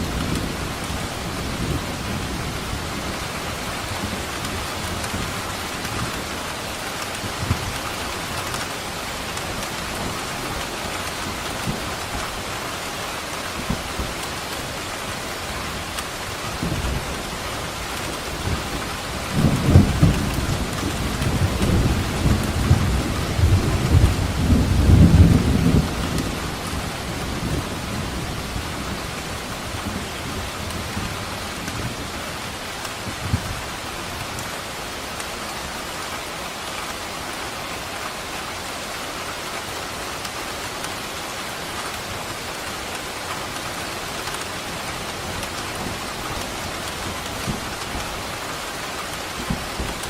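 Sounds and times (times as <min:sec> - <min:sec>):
steady rain falling: 0:00.0 - 0:50.0
thunder rumbling: 0:15.7 - 0:32.2.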